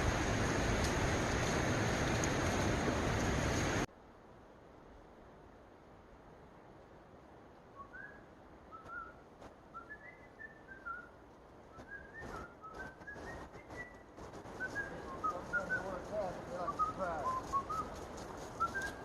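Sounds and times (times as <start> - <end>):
short whistled notes gliding: 7.8 - 11.1, 11.7 - 18.0, 18.6 - 19.0.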